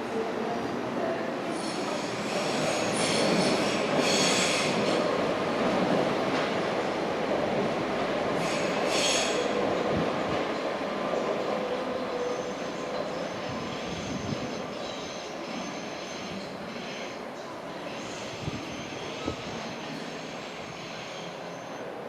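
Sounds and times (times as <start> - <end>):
train rumbling on rails: 0.0 - 22.0
train wheels squealing: 1.6 - 5.0, 8.4 - 9.6, 11.9 - 17.2, 17.8 - 21.9.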